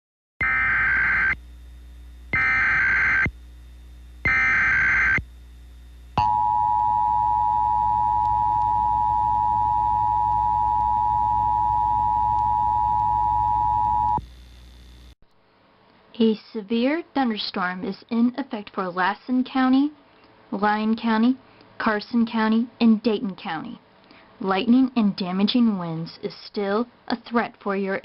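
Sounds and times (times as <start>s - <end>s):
warbling data bursts: 4.3s - 5.2s
two-tone attention signal: 6.2s - 14.2s.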